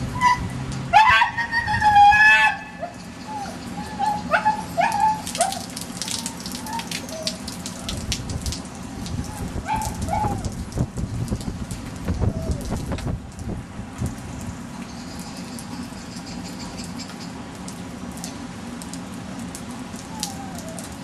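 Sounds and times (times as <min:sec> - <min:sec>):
puppy whimpering: 0:03.3 - 0:08.1, 0:20.1 - 0:21.0.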